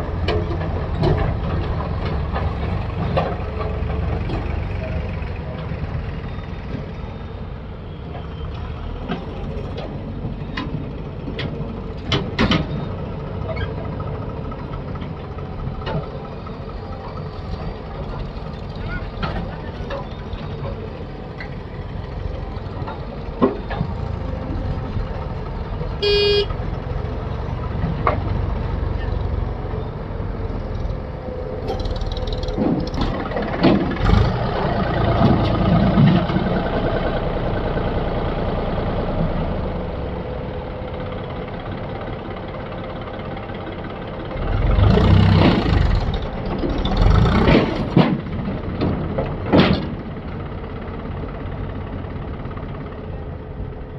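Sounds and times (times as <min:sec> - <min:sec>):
engine knocks: 0:00.0 - 0:07.0, 0:08.1 - 0:53.9
heavy machinery diesel engine: 0:00.0 - 0:53.9
short horn toot: 0:26.0 - 0:26.5.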